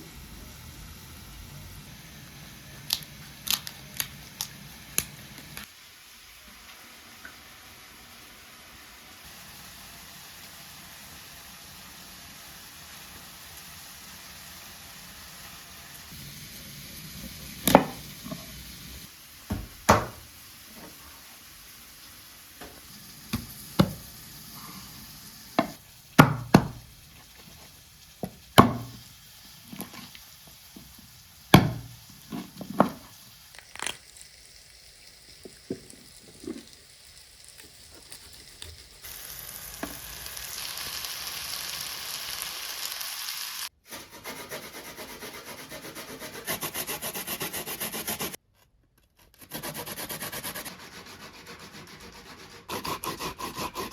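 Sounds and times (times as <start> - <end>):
food sizzling: 0.0 - 43.8.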